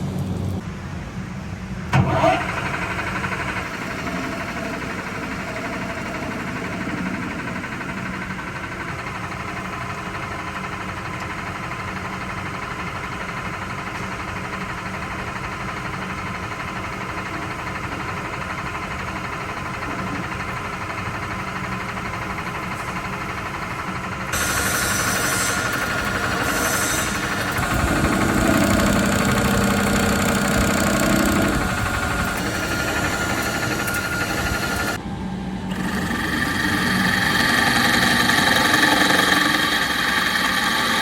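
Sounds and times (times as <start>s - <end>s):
machine humming: 1.9s - 10.8s, 19.2s - 41.0s.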